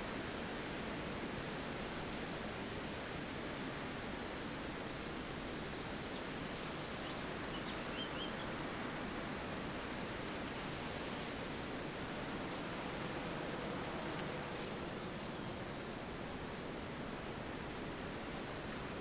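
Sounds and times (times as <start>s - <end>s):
wind through trees: 0.0s - 19.0s
faint bird chirps: 6.4s - 8.6s.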